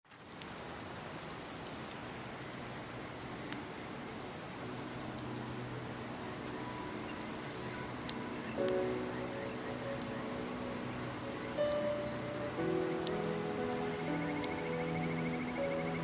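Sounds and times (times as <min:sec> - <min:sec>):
river rushing: 0:02.0 - 0:16.0
insects trilling: 0:04.6 - 0:16.0.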